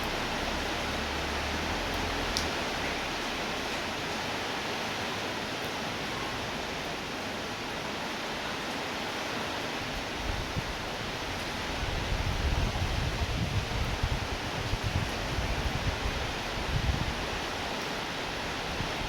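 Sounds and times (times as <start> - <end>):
rain hissing: 0.0 - 4.8.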